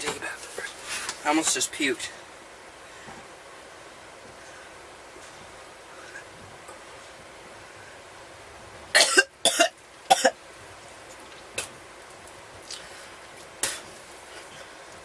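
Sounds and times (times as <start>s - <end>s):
man coughing: 9.0s - 10.4s.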